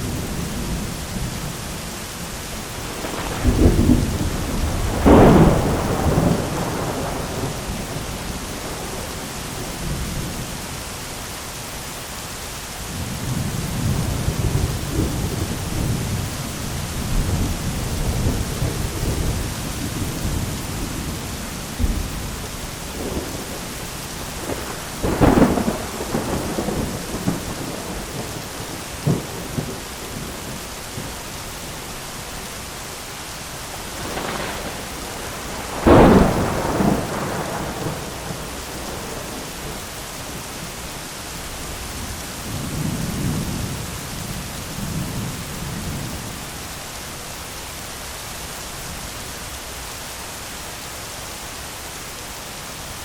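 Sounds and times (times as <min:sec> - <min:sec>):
heavy rain on an umbrella: 0:00.0 - 0:53.0
thunder: 0:02.9 - 0:09.2, 0:13.0 - 0:31.1, 0:33.9 - 0:40.5.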